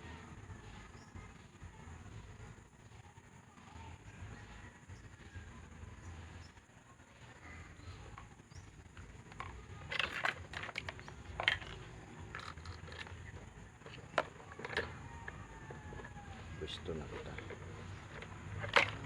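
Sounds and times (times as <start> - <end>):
small clicks and scrapes of parts: 8.9 - 16.2, 17.1 - 19.0.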